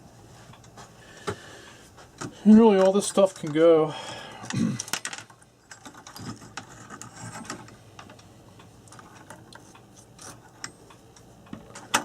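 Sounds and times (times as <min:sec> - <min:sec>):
small parts clicking and tapping: 0:04.4 - 0:12.0.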